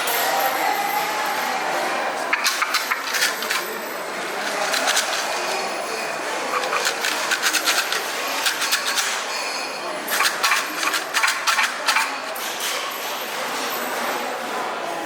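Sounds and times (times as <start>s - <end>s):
sticks rattling in shaken box: 2.3s - 13.2s.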